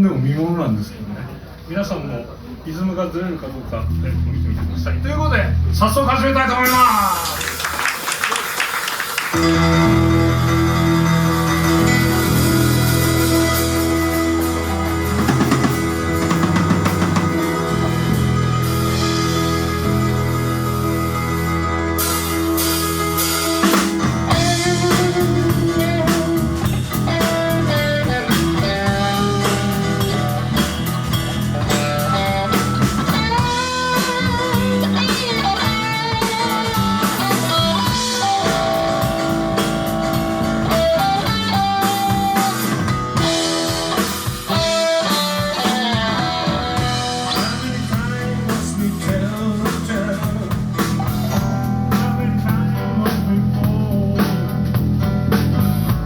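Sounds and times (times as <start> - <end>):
blues-rock band playing: 3.6 - 56.0
lead guitar bending notes: 9.3 - 56.0.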